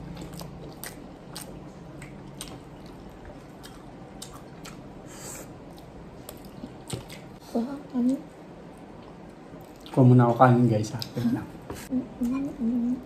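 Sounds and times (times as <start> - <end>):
wet chewing and mouth sounds: 0.0 - 7.4.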